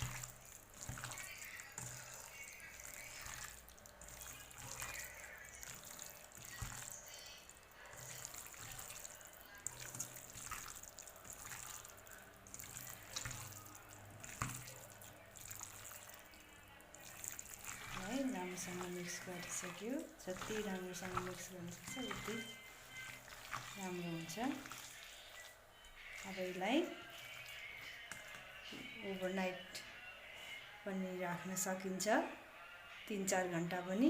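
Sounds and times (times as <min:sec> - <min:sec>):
hands kneading raw chicken: 0:00.0 - 0:28.6.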